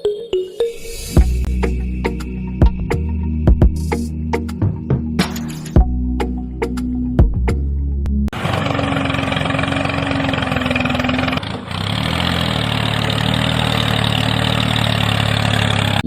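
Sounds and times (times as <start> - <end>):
tractor engine idling: 8.3 - 16.0.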